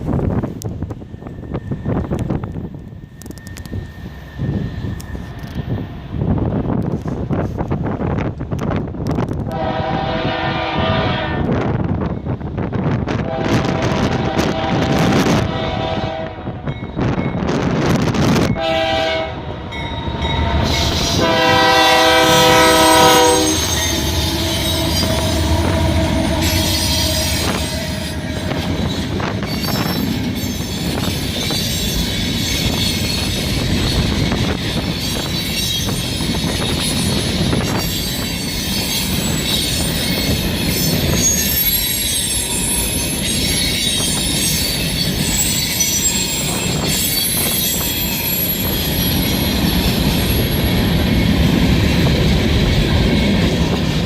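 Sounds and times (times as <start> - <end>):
train rumbling past: 0.0 - 54.0
high-pitched wheel squeal: 1.0 - 5.9, 19.9 - 51.2
train horn blasts: 9.5 - 11.8, 13.2 - 16.8, 18.4 - 29.3.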